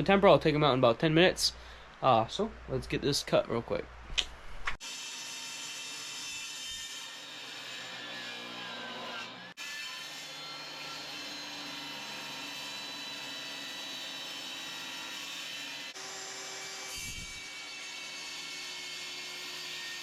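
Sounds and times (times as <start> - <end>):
power tool cutting antler: 4.8 - 20.0.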